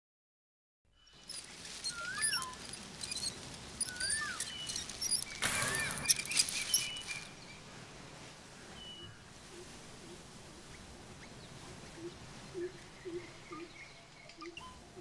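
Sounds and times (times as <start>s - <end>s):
high bird chirps: 1.0s - 7.7s
bird whistled call: 1.9s - 2.6s, 3.8s - 7.3s.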